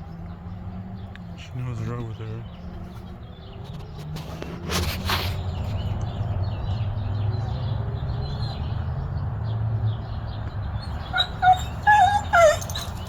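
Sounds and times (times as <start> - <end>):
chickens calling: 10.8 - 13.0.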